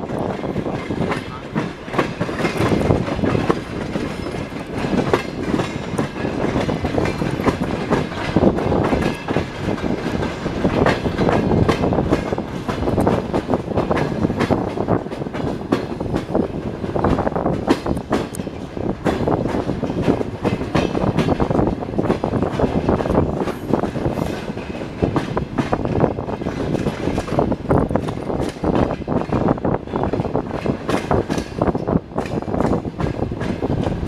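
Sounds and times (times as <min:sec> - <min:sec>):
train wheels clattering on track: 0:00.0 - 0:34.0.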